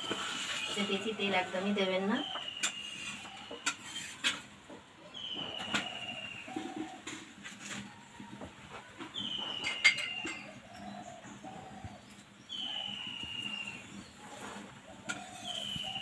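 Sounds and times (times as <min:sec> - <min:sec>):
bird whistle calls: 0:05.1 - 0:06.8, 0:12.5 - 0:13.9, 0:15.2 - 0:16.0.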